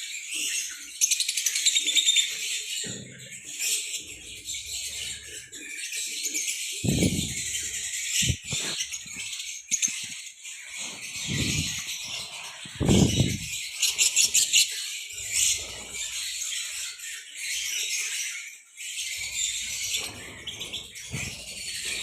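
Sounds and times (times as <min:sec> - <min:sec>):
lovebirds chattering and chirping: 0:00.0 - 0:22.0
low thumps: 0:06.8 - 0:07.6, 0:12.8 - 0:13.6.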